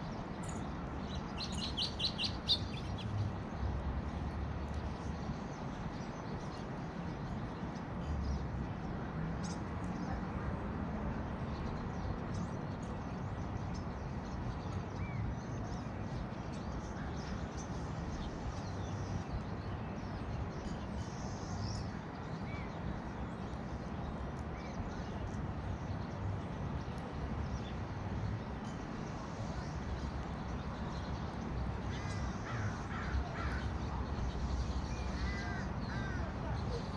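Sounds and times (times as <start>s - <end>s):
small birds chirping: 0.0s - 3.7s.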